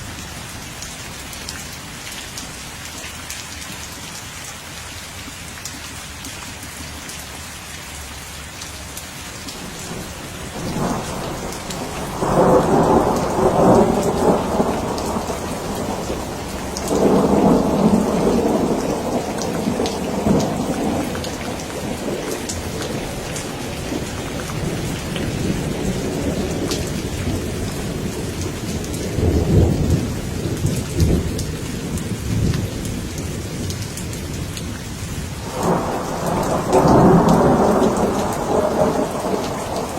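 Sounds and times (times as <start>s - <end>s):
steady rain falling: 0.0s - 39.9s
thunder rumbling: 9.6s - 33.8s, 35.3s - 39.9s.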